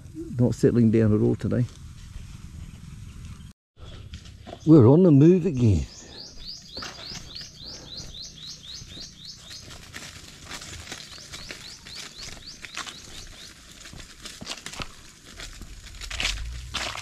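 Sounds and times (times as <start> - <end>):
crackling and rustling: 8.6 - 17.0.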